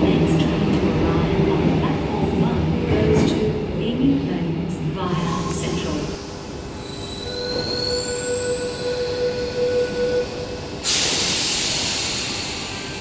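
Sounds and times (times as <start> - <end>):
electric train steady tone and whine: 0.0 - 13.0
loud hiss of released air: 10.8 - 13.0.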